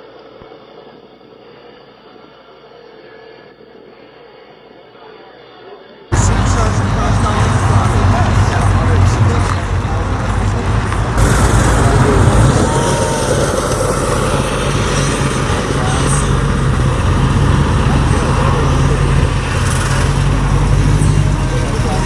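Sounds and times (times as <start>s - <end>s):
car engine running: 6.1s - 22.0s
people talking: 6.1s - 22.0s.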